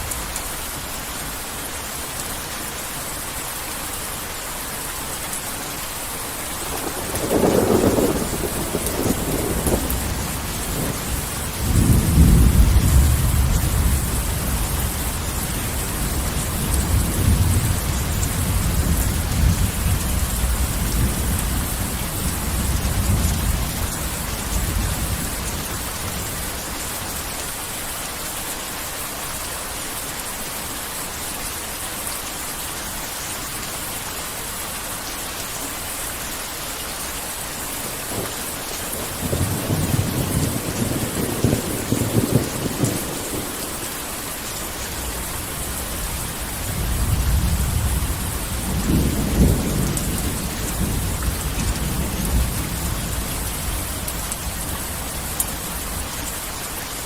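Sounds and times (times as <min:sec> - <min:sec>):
heavy rain: 0:00.0 - 0:57.0
rolling thunder: 0:06.6 - 0:26.2, 0:38.1 - 0:43.8, 0:45.0 - 0:53.9.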